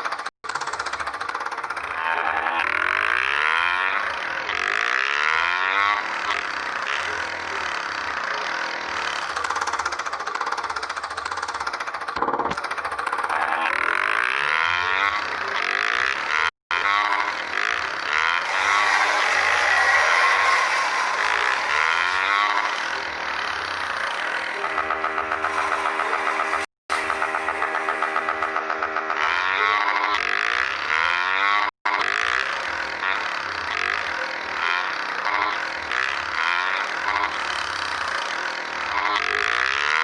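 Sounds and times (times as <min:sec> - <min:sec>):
motorcycle engine: 0:00.0 - 0:40.0.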